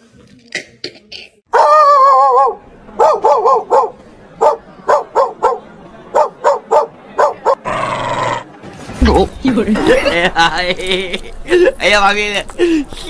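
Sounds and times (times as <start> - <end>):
dog barking in high yaps: 1.5 - 5.6.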